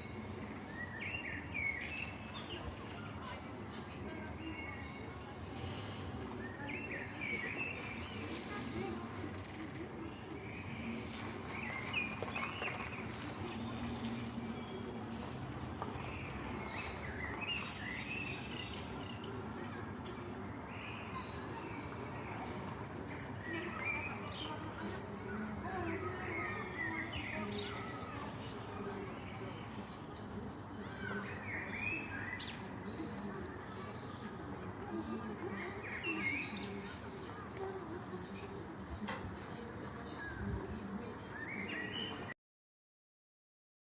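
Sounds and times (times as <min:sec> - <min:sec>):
steady background noise: 0:00.0 - 0:42.3
birds chirping: 0:00.0 - 0:42.4.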